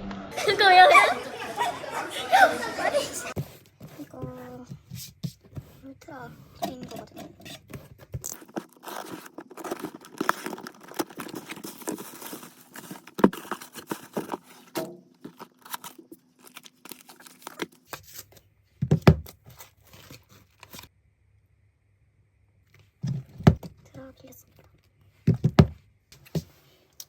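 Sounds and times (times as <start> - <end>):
packaging rustling and crinkling: 7.7 - 18.4.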